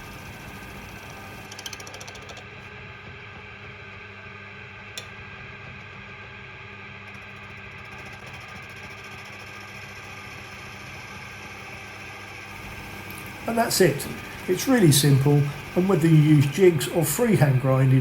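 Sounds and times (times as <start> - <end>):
bench grinder motor hum: 0.0 - 18.0
rattling: 1.4 - 2.6.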